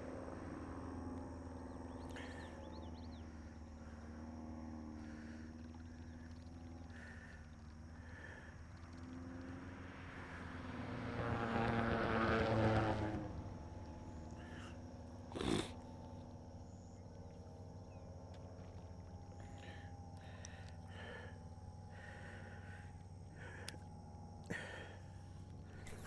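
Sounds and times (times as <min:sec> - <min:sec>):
low engine hum: 0:00.0 - 0:26.0
vehicle passing by: 0:09.0 - 0:14.6.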